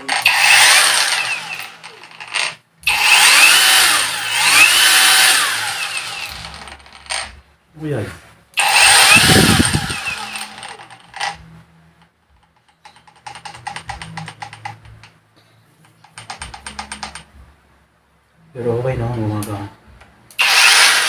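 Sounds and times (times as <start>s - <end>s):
angle grinder whining: 0.0s - 7.4s, 8.6s - 11.4s, 20.4s - 21.0s.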